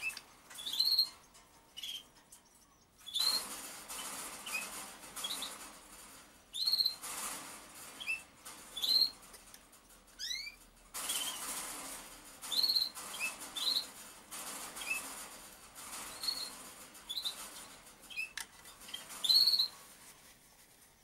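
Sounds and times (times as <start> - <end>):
small birds chirping: 0.0 - 7.2, 7.8 - 21.0
scratchy rustling noise: 11.0 - 21.0.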